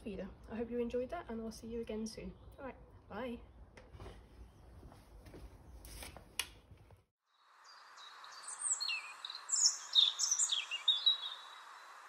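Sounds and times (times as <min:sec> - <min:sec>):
small birds chirping: 0:07.6 - 0:12.0.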